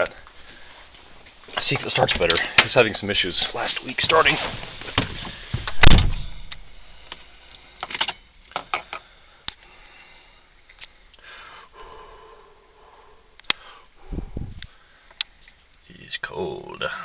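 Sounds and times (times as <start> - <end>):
loud thump: 5.0 - 6.5.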